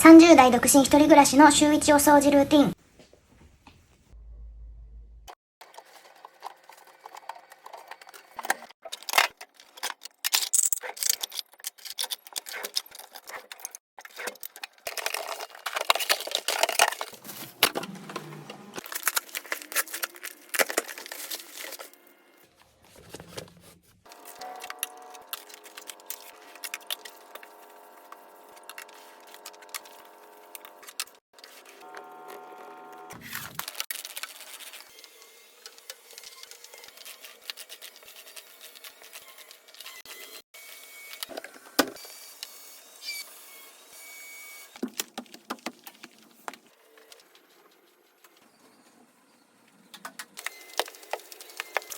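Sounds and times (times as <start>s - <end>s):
objects being handled: 5.7s - 32.5s, 44.8s - 48.8s, 50.4s - 51.9s.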